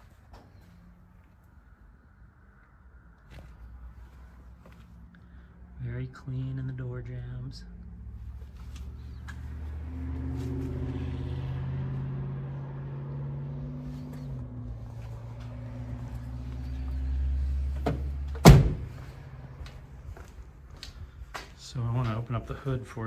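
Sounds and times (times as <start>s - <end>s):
car engine idling: 7.8s - 21.5s
car door shutting: 17.8s - 19.1s.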